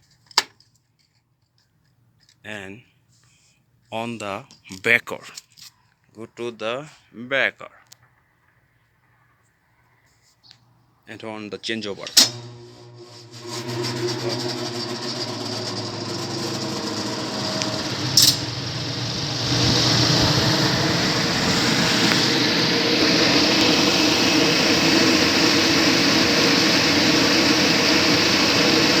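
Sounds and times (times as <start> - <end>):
mechanical hum: 11.8 - 29.0
contactor click: 12.0 - 14.5, 16.5 - 18.6
exhaust fan rushing: 12.0 - 29.0.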